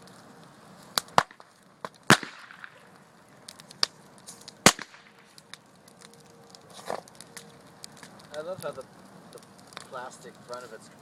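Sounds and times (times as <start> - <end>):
fire crackling: 0.0 - 11.0
firecrackers banging: 0.8 - 11.0.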